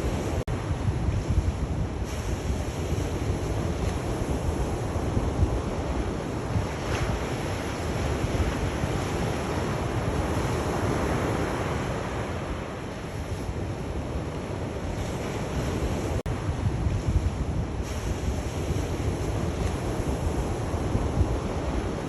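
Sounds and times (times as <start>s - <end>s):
sea waves washing on shore: 0.0s - 22.0s
wind buffeting microphone: 0.0s - 22.0s.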